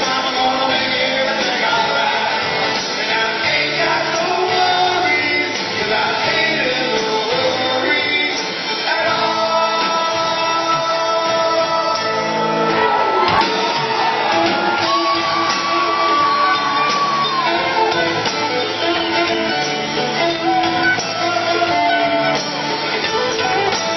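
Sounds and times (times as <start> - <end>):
rock band playing live: 0.0 - 23.9
lead guitar held bending notes: 10.2 - 23.9.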